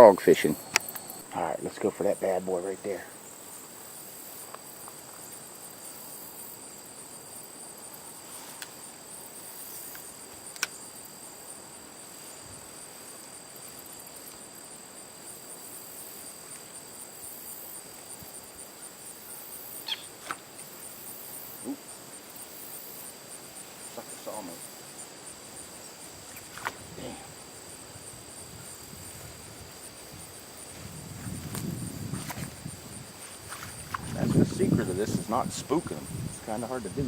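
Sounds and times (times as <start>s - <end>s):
crickets trilling: 0.0s - 37.0s
sharp click: 10.5s - 10.8s.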